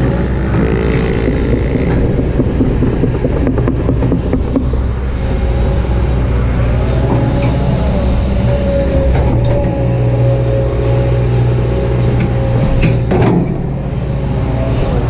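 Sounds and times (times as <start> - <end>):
sharp knocks: 0.0 - 7.4
excavator diesel engine: 0.0 - 15.0
hydraulic whine: 0.0 - 15.0.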